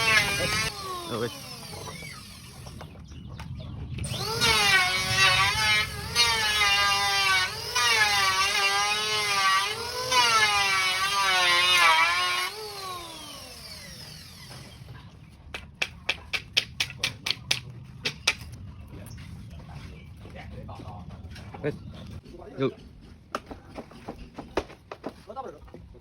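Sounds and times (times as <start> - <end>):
power tool motor whining: 0.0 - 2.9, 4.0 - 14.9.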